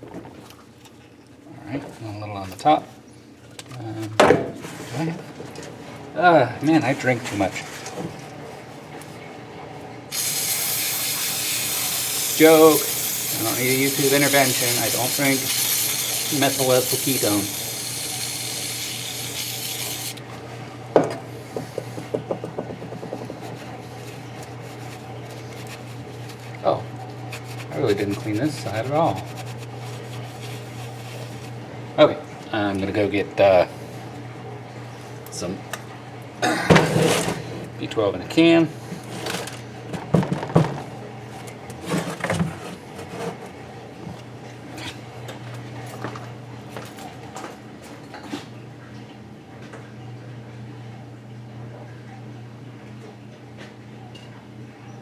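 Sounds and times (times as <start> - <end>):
brush scrubbing engine parts: 10.1 - 20.2, 23.0 - 31.5
objects knocking and clattering: 21.0 - 23.6, 39.9 - 40.9.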